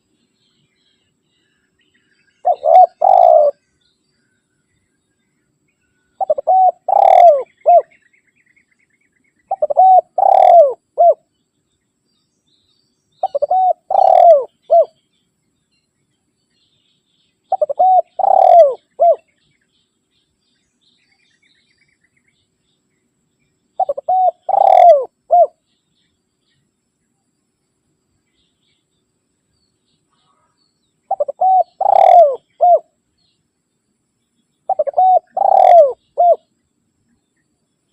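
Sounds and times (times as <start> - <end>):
dove cooing: 2.4 - 3.6, 6.2 - 8.0, 9.5 - 11.2, 13.2 - 15.0, 17.5 - 19.3, 23.8 - 25.6, 31.1 - 32.9, 34.7 - 36.5.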